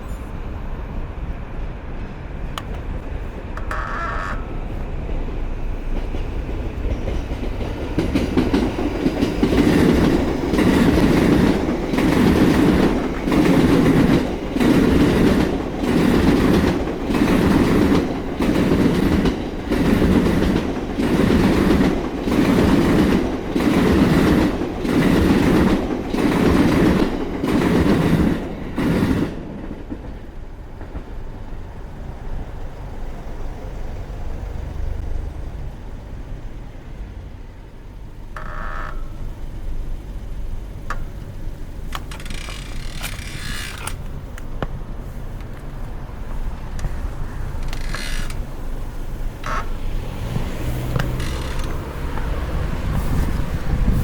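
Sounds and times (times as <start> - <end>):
background noise: 0.0 - 54.0
train wheels clacking on rails: 4.5 - 31.6, 40.8 - 44.8, 45.4 - 54.0.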